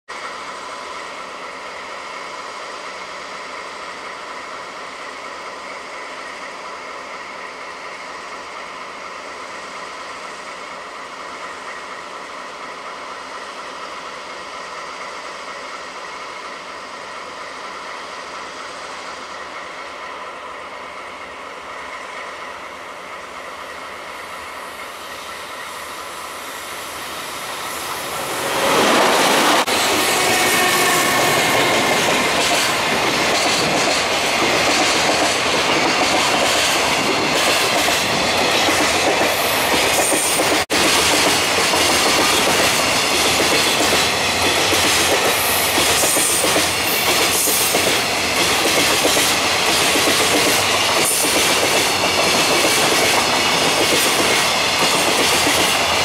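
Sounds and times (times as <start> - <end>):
electric locomotive whine: 0.1 - 56.0
rail noise: 0.1 - 56.0.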